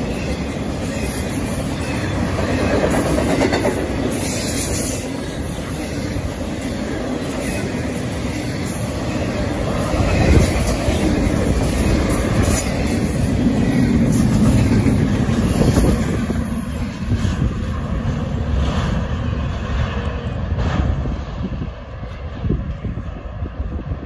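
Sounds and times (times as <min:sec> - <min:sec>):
train wheels clacking over rail joints: 0:00.0 - 0:18.9.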